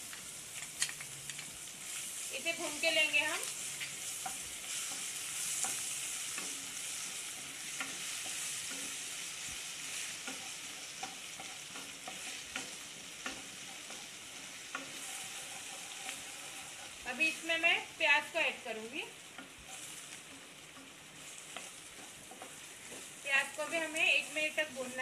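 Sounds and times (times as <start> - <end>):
food sizzling in hot oil: 0.0 - 25.0
wooden spatula scraping pan: 2.7 - 17.3.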